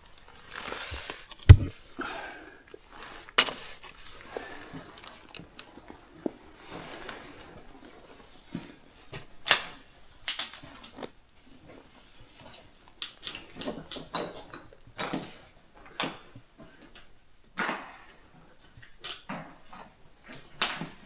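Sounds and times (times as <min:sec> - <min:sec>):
short scuffing scrapes: 0:00.8 - 0:01.7.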